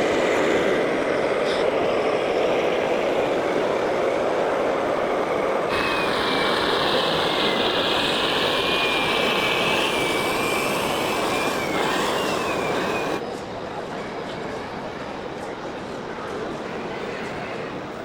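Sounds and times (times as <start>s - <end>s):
high electric motor whine: 0.0s - 13.2s
model truck mechanical whir: 0.0s - 13.2s.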